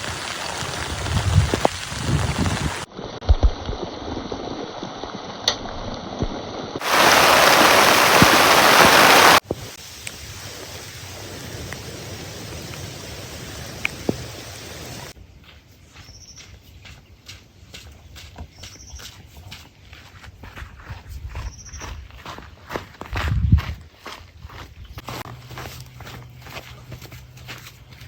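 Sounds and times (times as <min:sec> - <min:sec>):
heavy rain falling: 0:00.0 - 0:02.9, 0:06.8 - 0:15.1.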